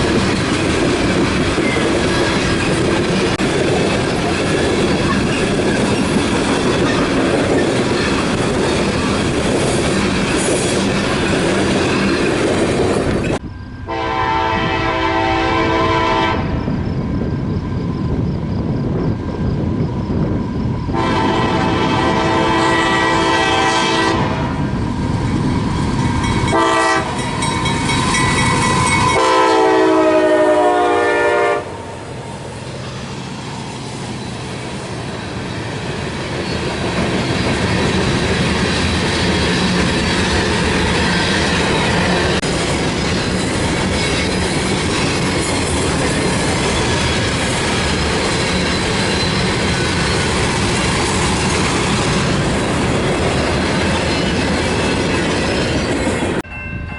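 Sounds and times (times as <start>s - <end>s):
train rumbling past: 0.0s - 56.9s
locomotive air horn blasts: 13.9s - 16.6s, 20.9s - 24.6s, 26.5s - 27.2s, 29.0s - 32.0s.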